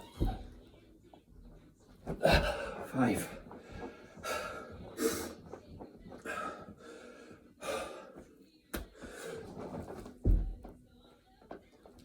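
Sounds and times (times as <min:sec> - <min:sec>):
man gasping breaths: 0:06.2 - 0:08.2.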